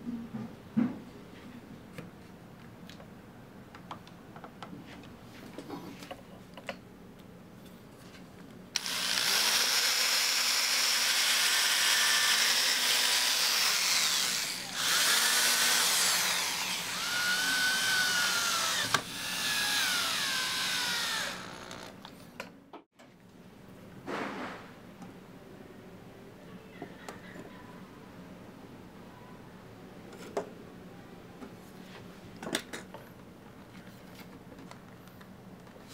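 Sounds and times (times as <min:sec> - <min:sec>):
power drill whining: 0:08.8 - 0:22.0.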